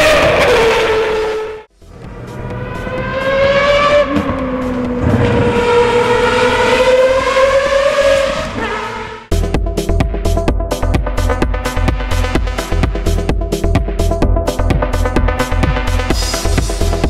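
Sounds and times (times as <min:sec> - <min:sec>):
race car engine revving: 0:00.0 - 0:09.3.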